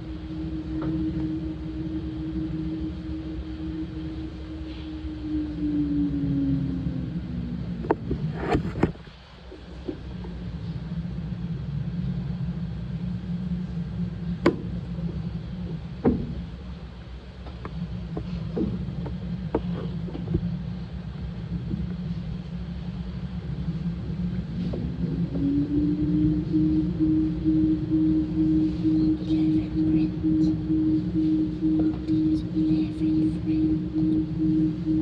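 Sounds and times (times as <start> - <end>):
washing machine motor hum: 0.0 - 35.0.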